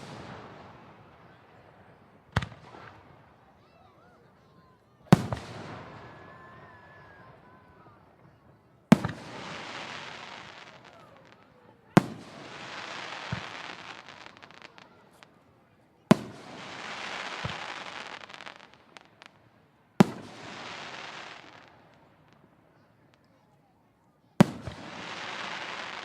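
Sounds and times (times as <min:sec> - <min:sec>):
fireworks crackling shower: 0:00.0 - 0:00.9, 0:08.9 - 0:15.4, 0:16.2 - 0:22.5, 0:24.4 - 0:26.0
fireworks bangs: 0:00.0 - 0:03.3, 0:05.1 - 0:15.4, 0:16.0 - 0:19.4, 0:20.0 - 0:22.5, 0:24.4 - 0:26.0.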